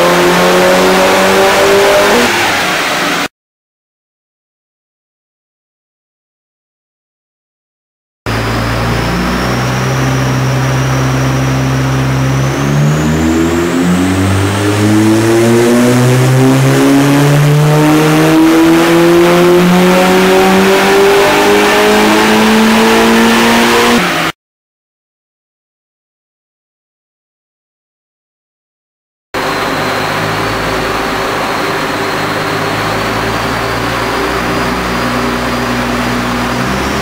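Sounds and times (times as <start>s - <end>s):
turbocharged car engine revving: 0.0s - 3.3s, 8.3s - 24.4s, 29.4s - 37.0s.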